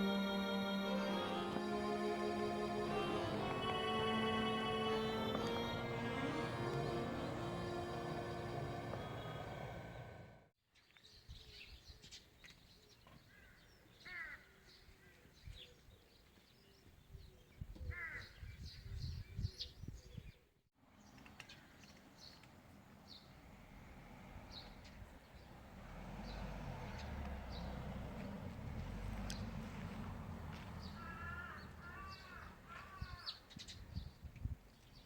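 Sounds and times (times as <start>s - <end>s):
background music: 0.0s - 10.2s
small birds chirping: 24.4s - 35.0s.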